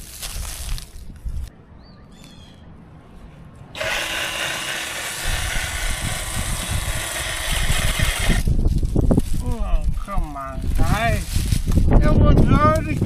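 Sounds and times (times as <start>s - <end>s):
chainsaw running: 3.8s - 8.5s.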